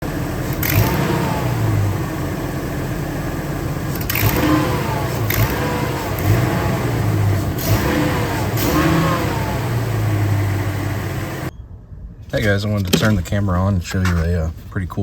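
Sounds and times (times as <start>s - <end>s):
engine revving in blips: 0.0s - 11.5s.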